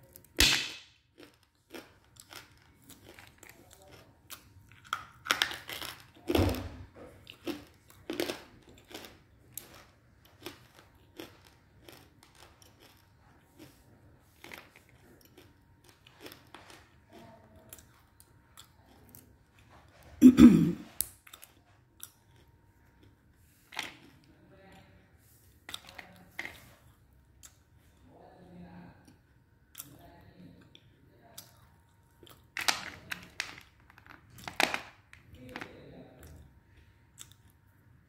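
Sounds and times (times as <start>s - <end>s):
crisp crunching of chewing: 1.1s - 20.0s, 20.9s - 24.3s, 30.6s - 37.8s.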